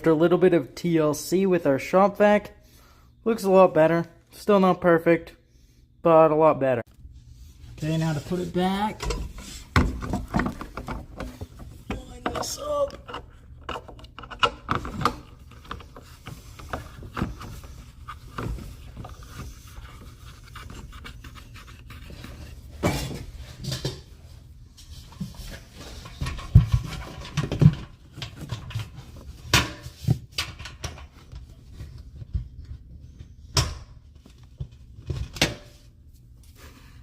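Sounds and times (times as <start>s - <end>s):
plastic parts knocking and scraping: 9.0s - 24.1s, 25.1s - 32.6s.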